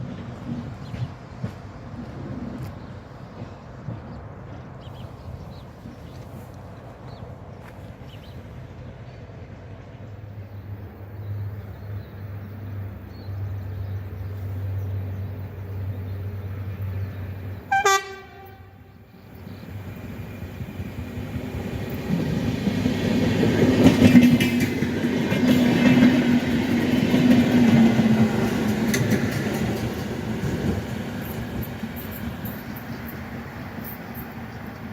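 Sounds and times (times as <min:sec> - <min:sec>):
wheels rumbling on rail: 0:00.0 - 0:34.9
train horn blast: 0:17.7 - 0:18.9.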